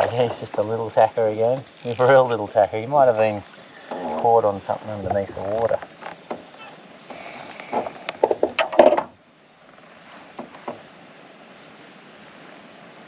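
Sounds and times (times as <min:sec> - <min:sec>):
steady low hiss: 0:00.0 - 0:13.0
knocks and clatter on kayak: 0:04.9 - 0:09.2, 0:10.3 - 0:10.9.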